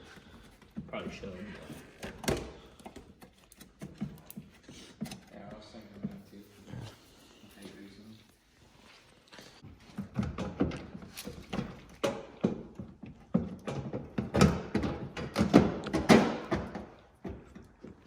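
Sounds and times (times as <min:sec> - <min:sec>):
irregular knocks and thumps: 0:09.7 - 0:18.0.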